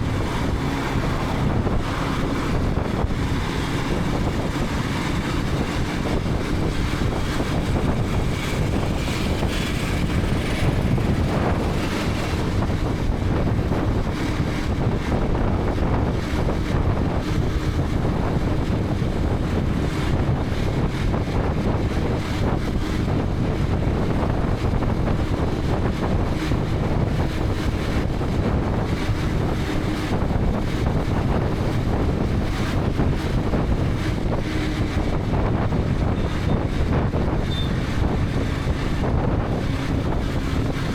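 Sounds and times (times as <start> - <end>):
motorcycle engine cruising: 0.0 - 40.9
wind buffeting microphone: 0.0 - 40.9.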